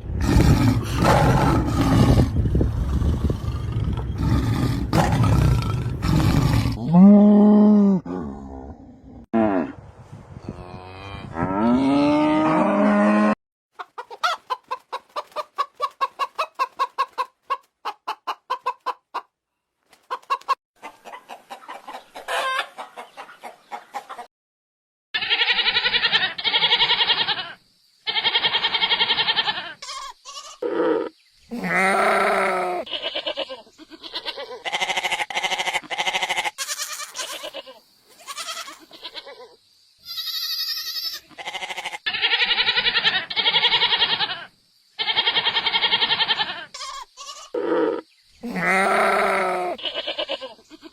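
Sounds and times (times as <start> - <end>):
chickens clucking: 13.8 - 24.3.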